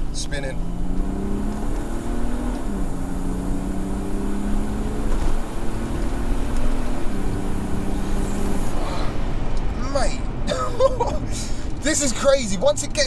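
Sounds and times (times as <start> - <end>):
diesel engine under full throttle: 0.0 - 10.4.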